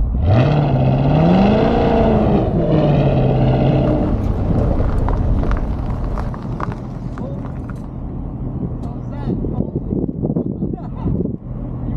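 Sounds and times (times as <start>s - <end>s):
car engine revving hard: 0.0s - 6.3s.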